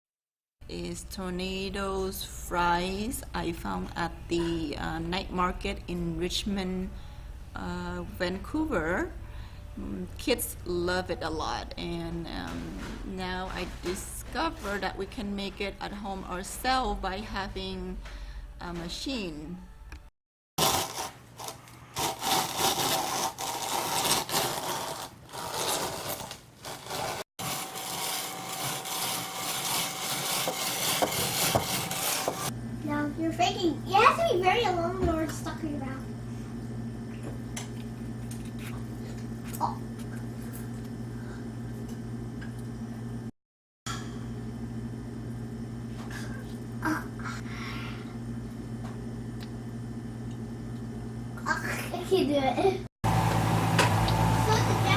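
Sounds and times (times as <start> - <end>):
potato cutter rasping: 20.6 - 32.5
kitchen appliance humming: 20.6 - 43.3, 43.9 - 54.9.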